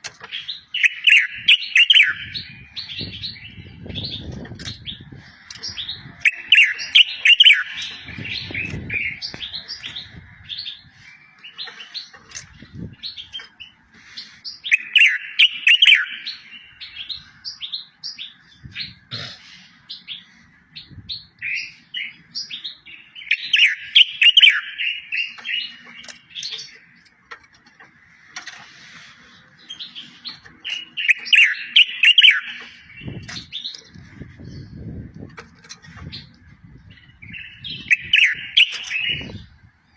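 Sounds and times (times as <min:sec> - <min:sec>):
songbird chirps and trills: 0:00.0 - 0:39.9
soft bird twittering: 0:00.2 - 0:39.9.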